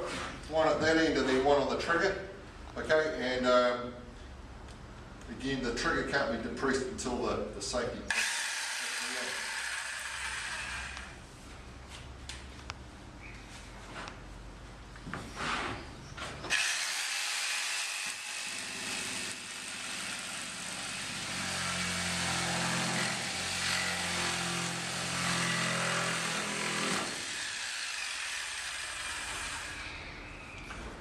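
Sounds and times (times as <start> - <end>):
reciprocating saw cutting timber: 8.1 - 11.2, 16.5 - 30.1.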